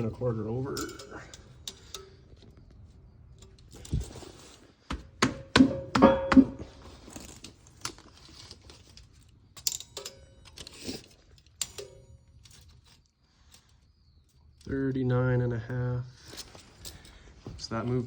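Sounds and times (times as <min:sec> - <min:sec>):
light metal clicks and clanks: 0:00.0 - 0:04.2, 0:05.7 - 0:13.9
sharp metal knocks: 0:05.2 - 0:06.7
metal ringing tone: 0:05.6 - 0:06.8.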